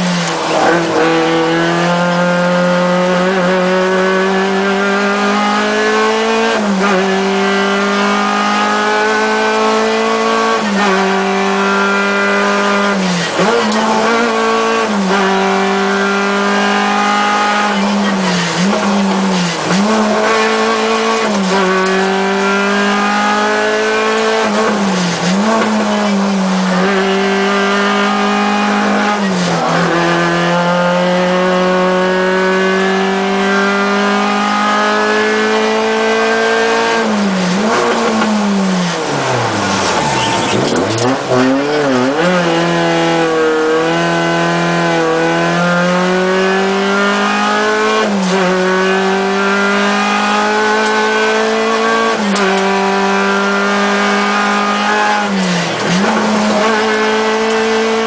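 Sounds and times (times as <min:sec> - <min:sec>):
car engine revving hard: 0:00.0 - 0:58.0.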